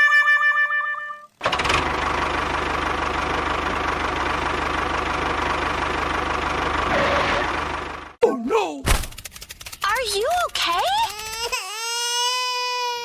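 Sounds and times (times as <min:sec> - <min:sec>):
tractor engine idling: 0:01.4 - 0:08.2.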